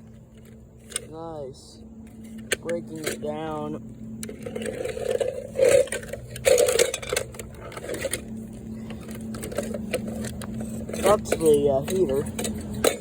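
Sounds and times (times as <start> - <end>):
plastic parts crunching and cracking: 4.2 - 13.0.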